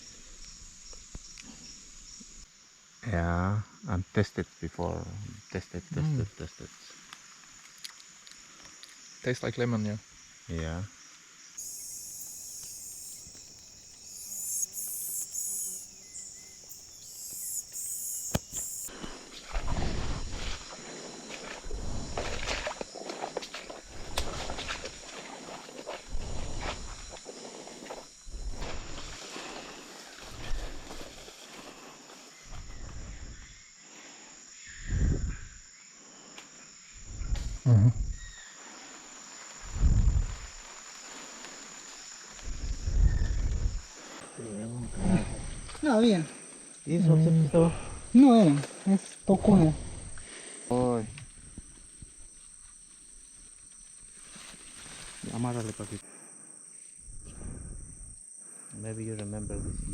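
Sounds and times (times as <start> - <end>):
insects buzzing: 0.0 - 59.9
footsteps through vegetation: 28.7 - 32.4, 54.0 - 56.0.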